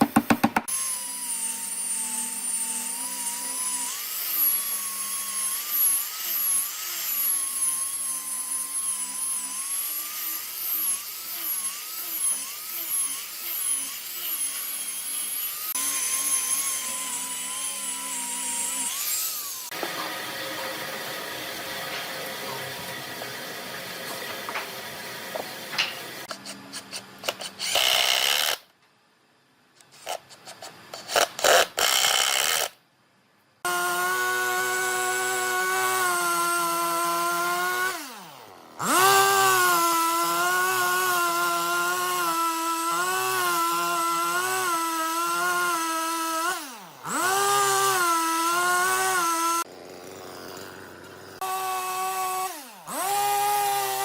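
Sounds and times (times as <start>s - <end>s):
wood knocking and clicking: 0.0s - 0.7s
power tool motor whining: 0.0s - 26.3s, 33.6s - 54.0s.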